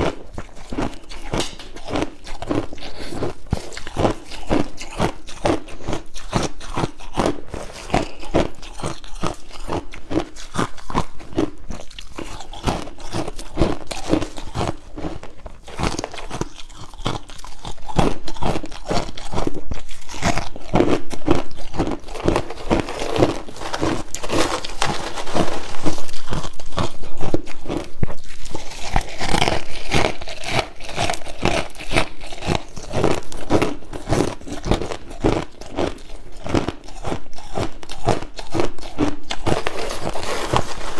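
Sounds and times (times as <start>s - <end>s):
crushed ice crunching: 20.2s - 40.9s.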